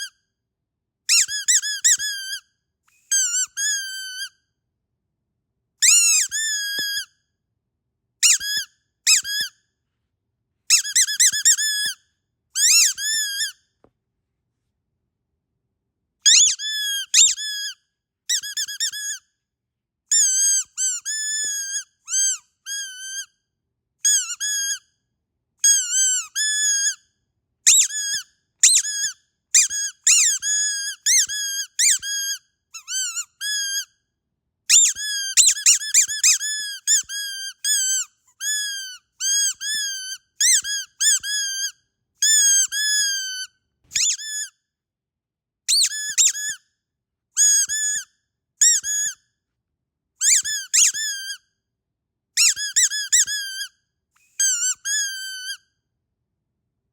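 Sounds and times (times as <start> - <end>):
squeaky dog toy squeaking: 1.1 - 4.5, 5.8 - 7.2, 8.2 - 9.6, 10.7 - 12.0, 12.6 - 13.6, 16.2 - 19.3, 20.1 - 23.4, 24.0 - 24.9, 25.6 - 34.0, 34.7 - 44.6, 45.7 - 46.6, 47.4 - 49.2, 50.2 - 51.5, 52.4 - 55.7.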